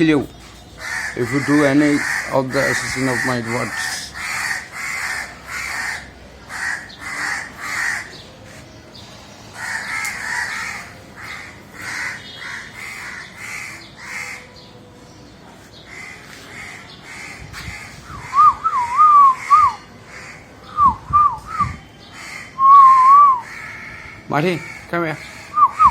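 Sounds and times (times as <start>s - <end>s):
crow cawing: 0.8s - 8.6s, 9.5s - 14.5s, 15.9s - 18.0s, 19.3s - 20.6s, 22.1s - 22.7s, 23.4s - 25.9s.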